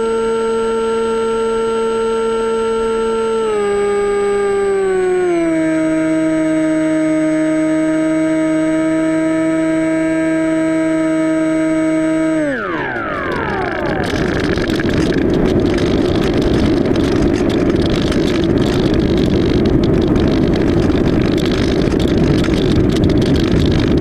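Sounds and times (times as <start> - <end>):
rushing airflow noise: 12.4 - 24.0.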